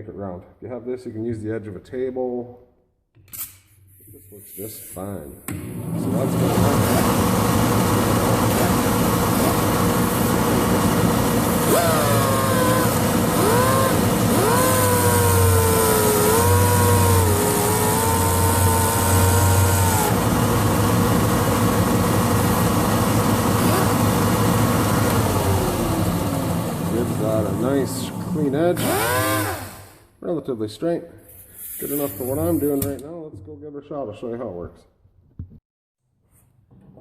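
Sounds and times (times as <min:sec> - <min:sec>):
electric grinder motor: 0:06.0 - 0:30.0.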